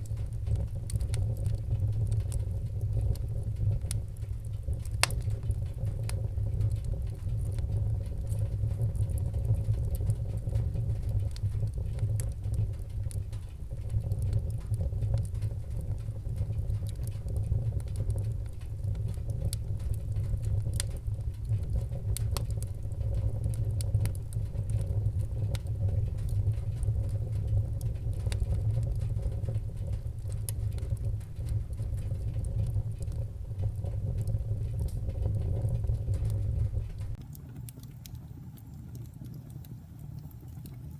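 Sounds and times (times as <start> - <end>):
fire crackling and popping: 0.0 - 40.9
low rumble of flame: 0.0 - 40.9.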